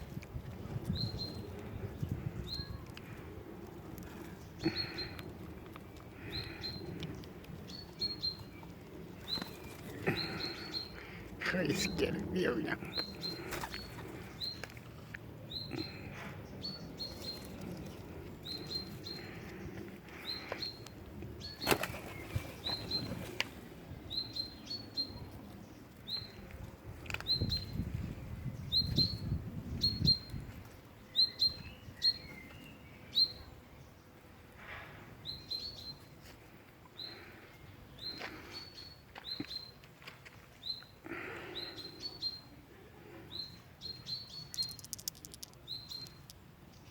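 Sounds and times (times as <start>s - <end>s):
small bird chirping: 43.4s - 46.9s
sharp clicks and taps: 44.5s - 46.4s.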